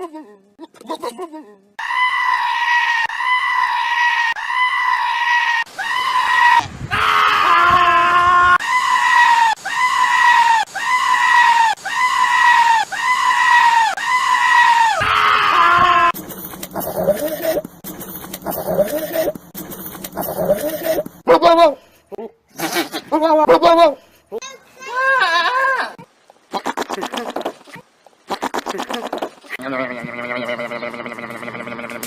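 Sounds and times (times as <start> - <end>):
goat bleating: 16.8 - 17.6, 22.5 - 23.7, 24.9 - 27.5, 28.3 - 32.0.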